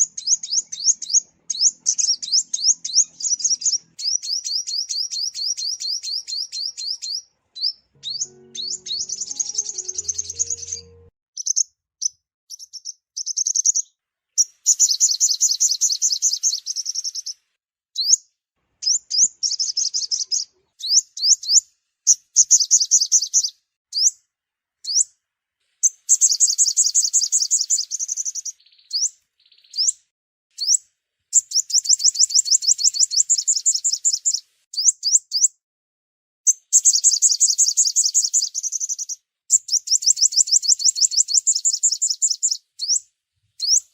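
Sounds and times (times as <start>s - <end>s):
sunbird trilling song: 0.0s - 11.6s, 25.8s - 30.0s, 30.6s - 35.6s, 36.5s - 43.9s.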